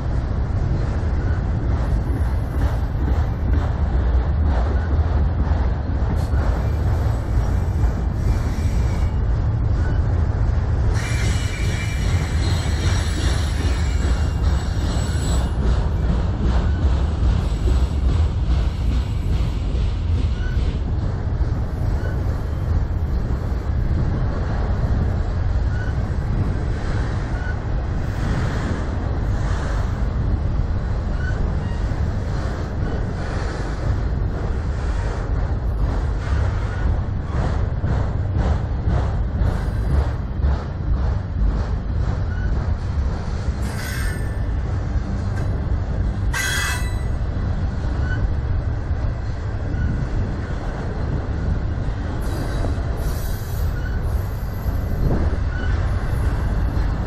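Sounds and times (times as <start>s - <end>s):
train wheels rumbling on rails: 0.0s - 57.0s
metallic wheel squeals: 9.8s - 10.1s, 10.9s - 15.7s, 22.0s - 22.3s, 25.7s - 26.1s, 27.3s - 27.6s, 31.1s - 32.1s, 42.2s - 42.6s, 46.3s - 47.2s, 48.0s - 48.4s, 49.6s - 50.1s, 52.2s - 56.3s.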